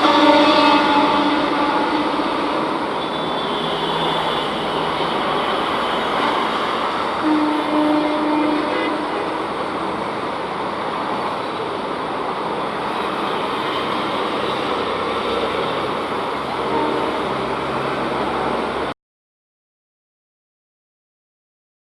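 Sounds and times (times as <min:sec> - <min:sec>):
train wheels rumbling on rails: 0:00.0 - 0:18.9.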